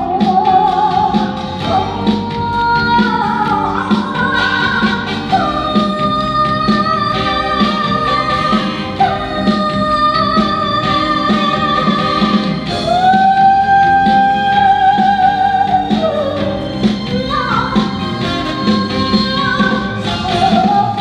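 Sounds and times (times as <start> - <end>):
live band with steady beat: 0.0 - 21.0
woman singing with vibrato: 0.0 - 21.0.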